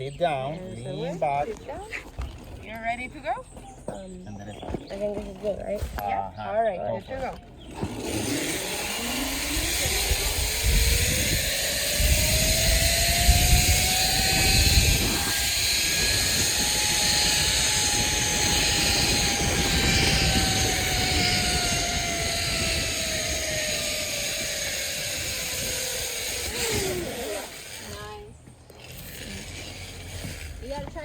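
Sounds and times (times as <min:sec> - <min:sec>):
zip line pulleys whining on cable: 0:07.6 - 0:31.0
wind rushing over microphone: 0:08.1 - 0:27.9.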